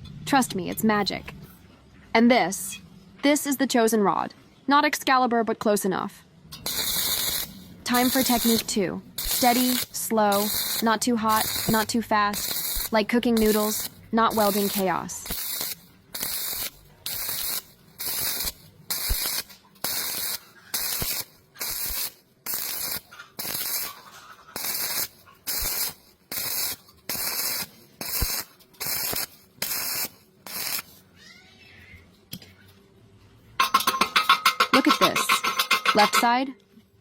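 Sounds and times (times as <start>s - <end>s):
welding arc crackling: 6.6s - 31.0s.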